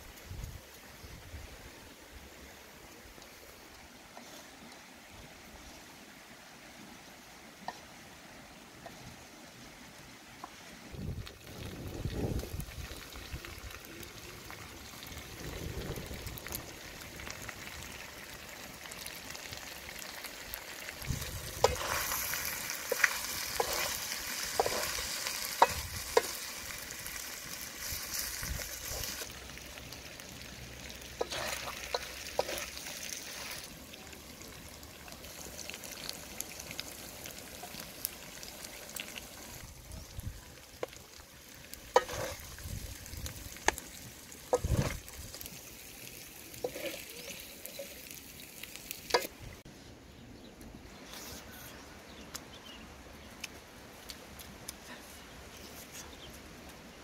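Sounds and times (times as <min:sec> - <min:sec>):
fish frying in a wok: 0:10.9 - 0:49.4
spatula scraping and clinking wok: 0:21.6 - 0:26.5, 0:31.2 - 0:33.6, 0:41.9 - 0:42.5, 0:46.6 - 0:47.9.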